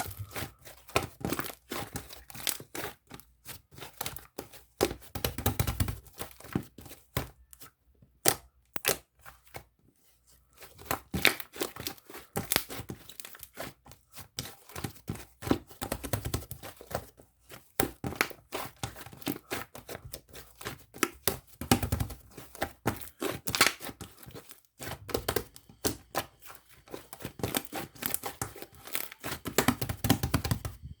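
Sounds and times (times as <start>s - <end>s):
slime crackling and tearing: 17.9s - 30.6s.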